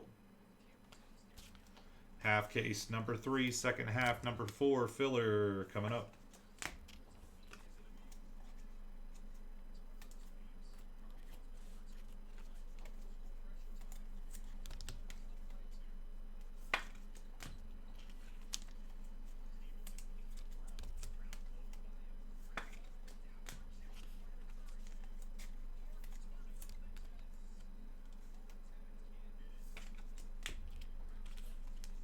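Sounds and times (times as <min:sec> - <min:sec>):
steady low hum: 0:00.0 - 0:32.0
cards and packaging clicking: 0:16.6 - 0:21.8, 0:29.6 - 0:32.0.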